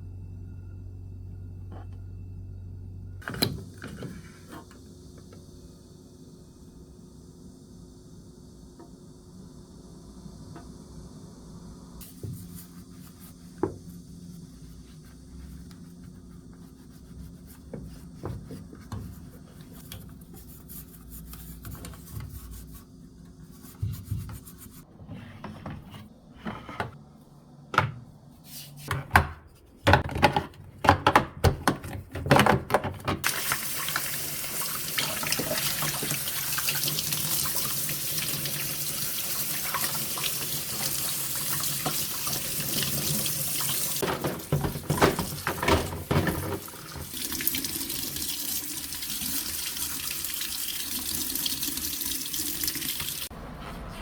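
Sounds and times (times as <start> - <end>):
water running from a tap: 33.2 - 53.3.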